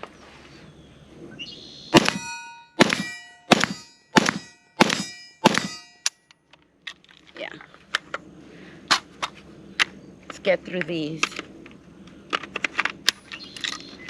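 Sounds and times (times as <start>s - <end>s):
rifle shots: 1.9s - 6.0s
steel target ringing: 1.9s - 6.2s.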